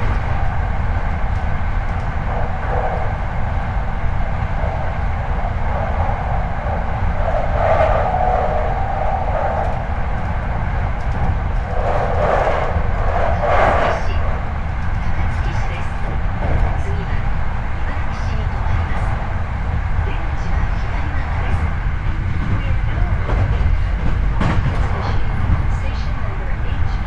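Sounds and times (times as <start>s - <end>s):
rasping from train wheels: 0.0s - 17.0s
train wheels rumbling on rail: 0.0s - 27.0s.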